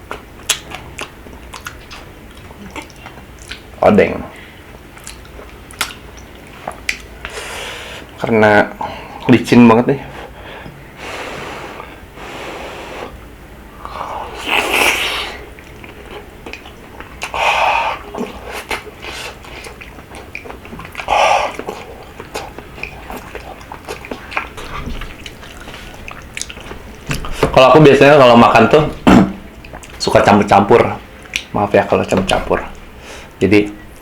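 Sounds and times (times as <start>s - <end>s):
wet chewing mouth clicks: 0.1s - 3.7s, 5.0s - 7.4s, 13.8s - 17.4s, 18.0s - 27.4s
slurping: 13.8s - 26.6s.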